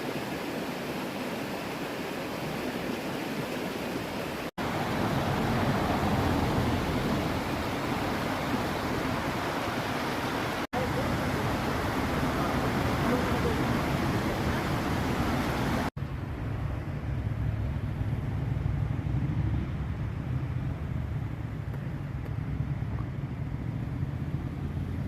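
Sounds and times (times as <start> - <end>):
stream rushing water: 0.0 - 16.2.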